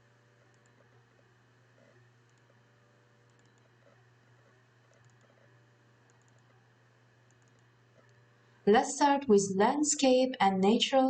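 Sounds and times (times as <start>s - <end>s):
faint electrical hum: 0.0s - 11.0s
faint clicks: 0.5s - 0.9s, 1.8s - 2.6s, 3.3s - 6.6s, 7.2s - 8.3s.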